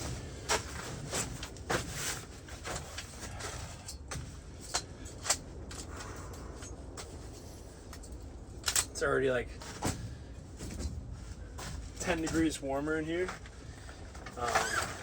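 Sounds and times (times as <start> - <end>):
camp gear knocks and clicks: 0.0 - 7.1
low steady rumble: 0.0 - 15.0.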